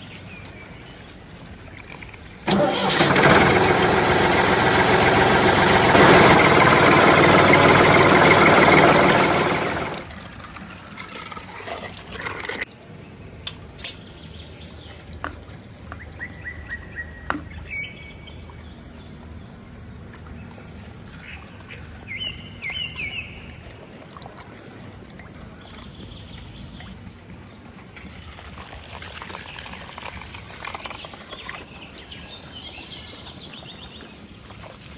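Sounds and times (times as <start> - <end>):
water trickling and splashing: 0.0 - 34.9
low engine hum: 2.3 - 10.4.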